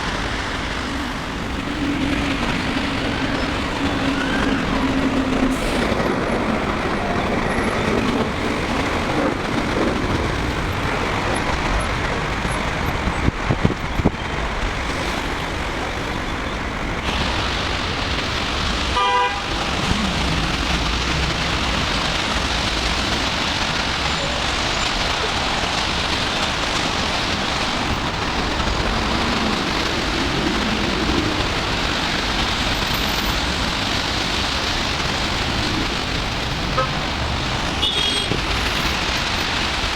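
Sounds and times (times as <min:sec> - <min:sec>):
road traffic: 0:00.0 - 0:39.9
car horn toot: 0:19.0 - 0:19.6, 0:36.8 - 0:37.0, 0:37.8 - 0:38.4.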